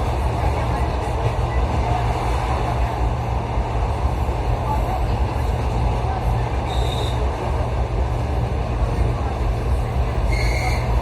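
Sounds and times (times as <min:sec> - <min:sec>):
train rumbling on rails: 0:00.0 - 0:11.0
faint high whistle: 0:06.7 - 0:07.2, 0:10.3 - 0:10.9.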